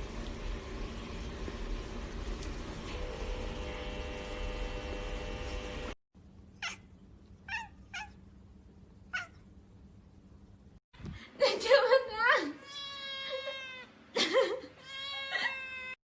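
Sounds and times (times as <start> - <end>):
steady hum: 0.0 - 7.3
cat meowing: 6.6 - 8.2, 9.1 - 9.4, 12.6 - 13.9, 14.8 - 16.0.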